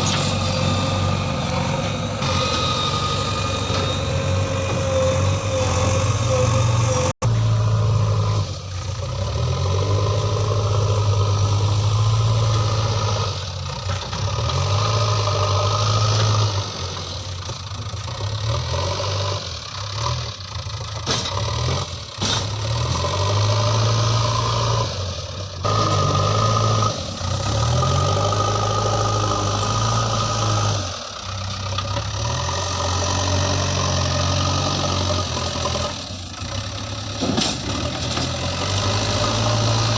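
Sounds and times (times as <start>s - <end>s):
high engine whine: 0.0s - 19.1s
diesel engine running: 0.0s - 39.9s.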